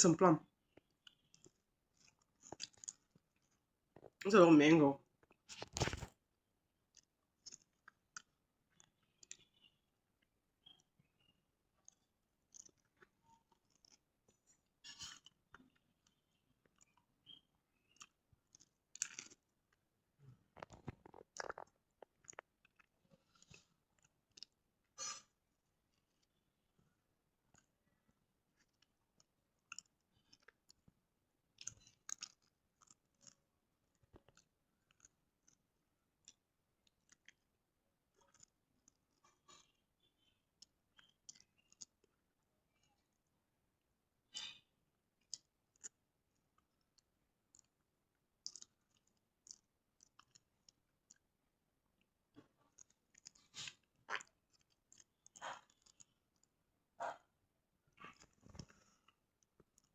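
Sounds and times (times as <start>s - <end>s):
chewing sounds: 0.7s - 3.5s, 6.9s - 9.6s, 11.8s - 19.5s, 20.6s - 25.3s, 28.5s - 30.8s, 31.6s - 35.6s, 36.2s - 37.4s, 38.1s - 39.8s, 40.6s - 42.1s, 45.2s - 46.0s, 46.6s - 47.8s, 48.4s - 51.3s, 52.3s - 56.5s.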